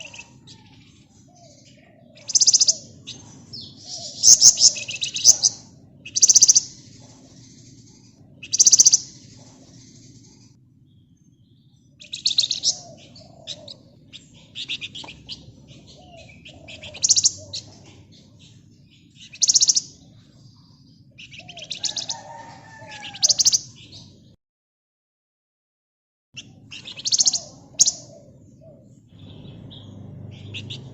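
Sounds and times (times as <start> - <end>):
songbird trilling: 1.4 - 10.4, 12.0 - 20.1, 21.1 - 24.1, 26.4 - 30.9
low hum: 26.4 - 30.9.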